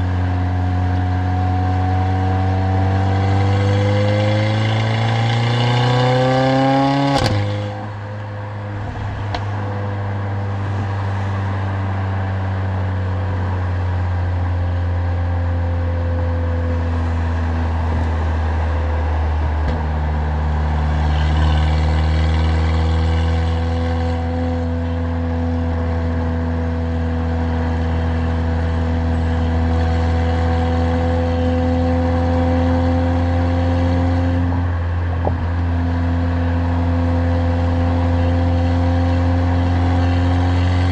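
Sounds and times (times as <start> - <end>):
car engine revving: 2.0 - 11.6
exhaust crack at upshift: 6.8 - 10.9.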